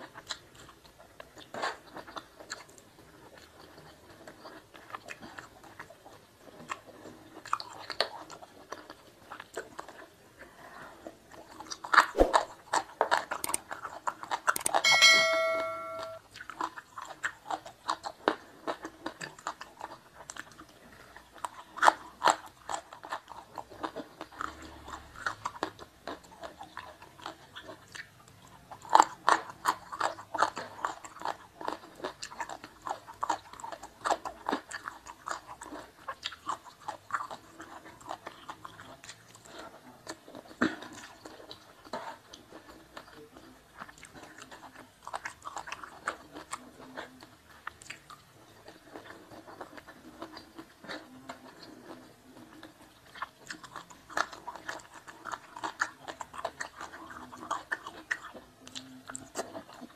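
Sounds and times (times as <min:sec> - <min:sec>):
crunchy chewing: 0:00.0 - 0:14.8, 0:16.2 - 0:59.9
wet mouth sounds: 0:11.5 - 0:14.8.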